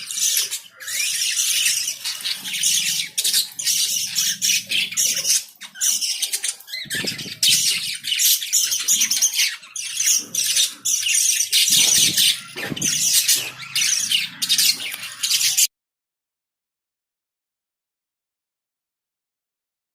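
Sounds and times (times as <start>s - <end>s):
lovebirds chattering and chirping: 0.0s - 15.7s.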